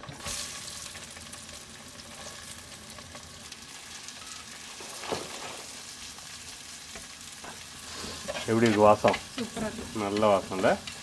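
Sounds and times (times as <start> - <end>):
onion sizzling in oil: 0.0 - 11.0
spoon knocking pan: 6.9 - 11.0.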